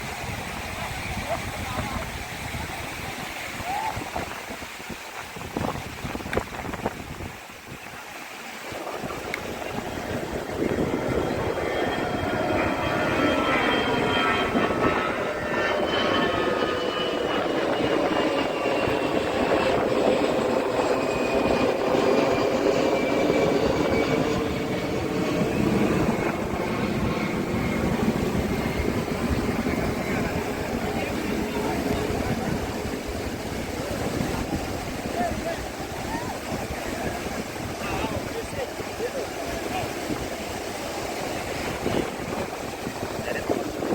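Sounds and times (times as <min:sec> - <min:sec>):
faint whine falling in pitch: 0:08.8 - 0:33.1
loud engine drone with rushing: 0:09.4 - 0:35.7.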